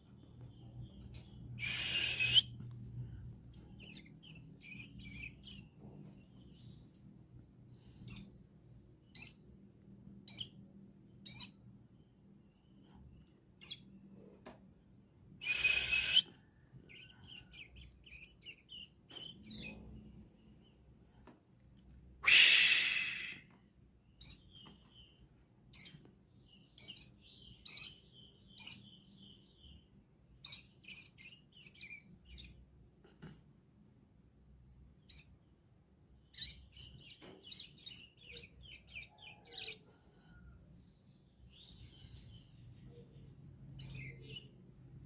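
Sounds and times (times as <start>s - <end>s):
bird high chirps: 0.3s - 2.6s, 3.5s - 5.7s, 9.1s - 9.4s, 10.2s - 10.6s, 11.2s - 11.6s, 15.4s - 19.9s, 22.2s - 23.5s, 24.1s - 29.8s, 36.3s - 44.6s.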